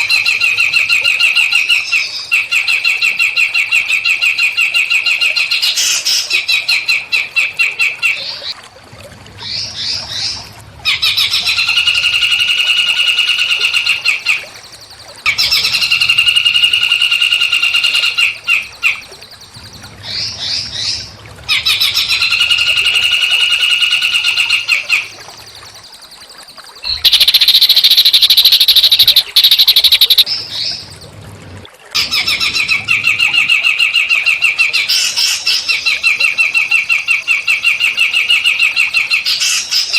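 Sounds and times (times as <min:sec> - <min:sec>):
songbird trilling: 0:26.8 - 0:31.0
harsh buzzy bird call: 0:26.9 - 0:30.3.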